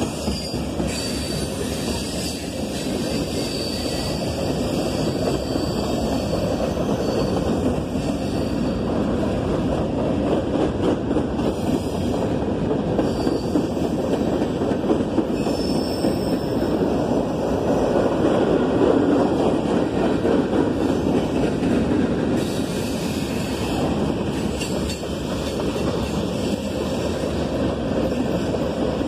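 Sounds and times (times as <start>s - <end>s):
steel wheels rumbling on rails: 0.0s - 29.0s
faint high wheel squeals: 3.1s - 8.8s, 13.0s - 13.8s, 15.4s - 16.6s.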